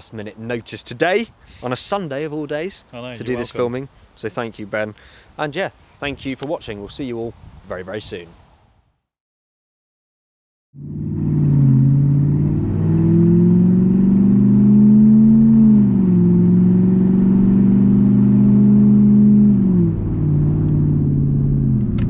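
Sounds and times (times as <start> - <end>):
car engine accelerating: 10.8 - 22.0.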